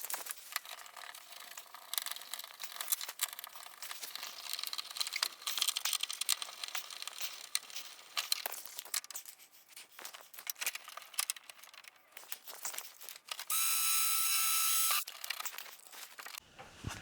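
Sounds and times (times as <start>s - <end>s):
mechanical whir: 13.5s - 15.0s.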